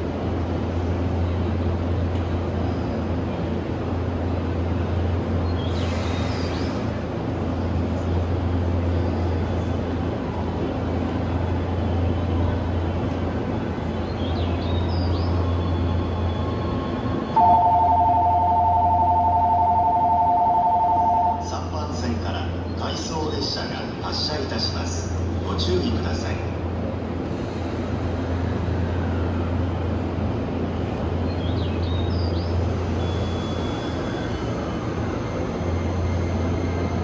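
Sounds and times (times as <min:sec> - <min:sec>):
train equipment humming: 0:00.0 - 0:37.0
station noise: 0:06.8 - 0:27.0, 0:32.0 - 0:37.0
electronic departure bell ringing: 0:17.4 - 0:21.6.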